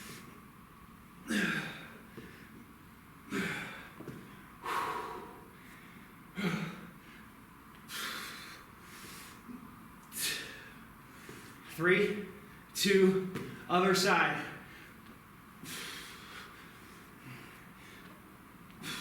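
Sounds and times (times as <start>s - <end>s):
man grunting: 1.3s - 1.9s
man breathing hard: 1.3s - 2.6s, 3.3s - 11.7s, 15.6s - 18.2s, 18.8s - 19.0s.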